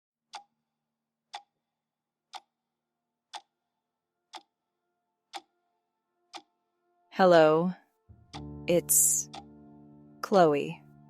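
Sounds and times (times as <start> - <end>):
sharp ticking: 8.3 - 9.5.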